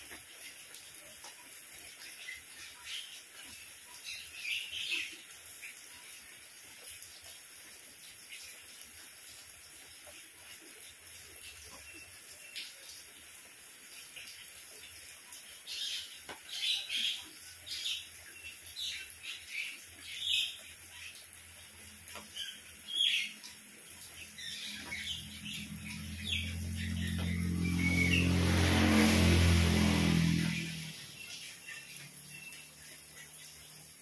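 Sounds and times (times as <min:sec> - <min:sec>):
faint rain hiss: 0:00.0 - 0:34.0
songbirds chirping: 0:15.3 - 0:28.6
low humming drone with hiss: 0:21.7 - 0:34.0.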